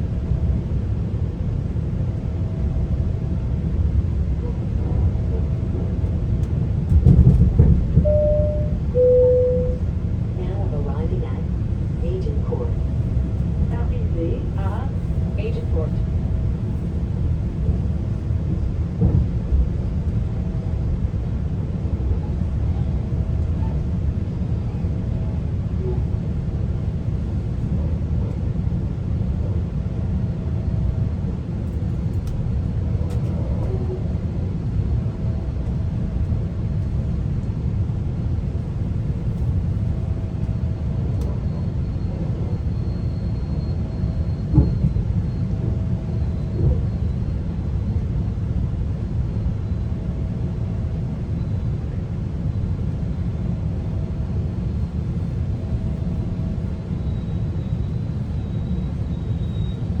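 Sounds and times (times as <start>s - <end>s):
train rumble inside coach: 0.0s - 60.0s.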